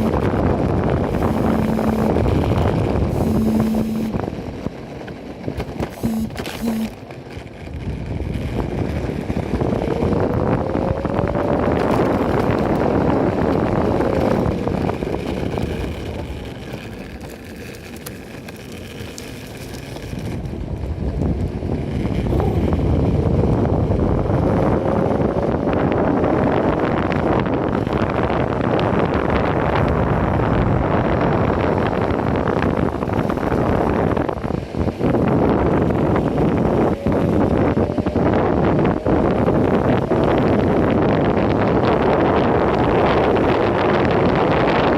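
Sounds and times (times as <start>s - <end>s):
electric motor whine: 0.0s - 4.4s, 5.8s - 7.1s
wheels rumbling on pavement: 0.0s - 44.9s
wind buffeting microphone: 0.0s - 44.9s.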